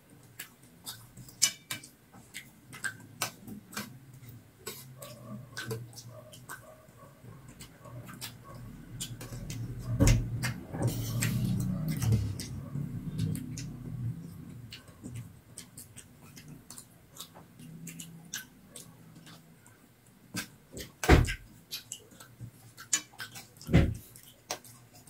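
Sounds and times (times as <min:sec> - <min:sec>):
thump: 0:21.0 - 0:21.4, 0:23.7 - 0:24.0.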